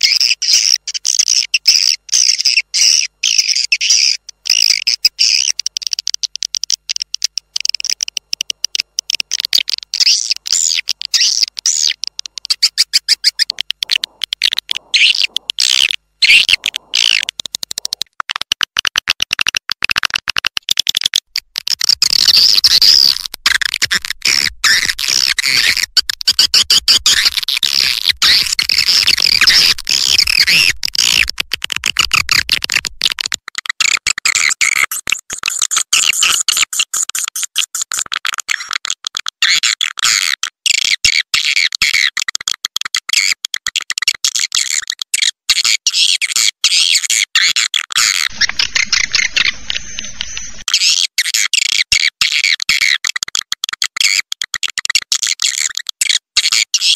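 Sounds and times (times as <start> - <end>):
swiftlet chirps and twitters: 0.0 - 6.0, 9.9 - 17.3, 48.3 - 50.7.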